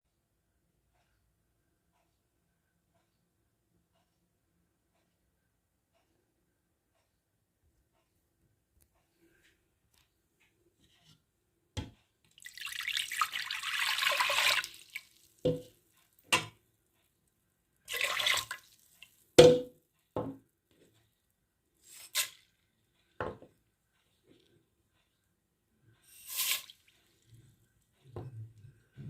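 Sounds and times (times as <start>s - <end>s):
kitchen tap running: 12.4s - 15.7s, 17.9s - 19.1s.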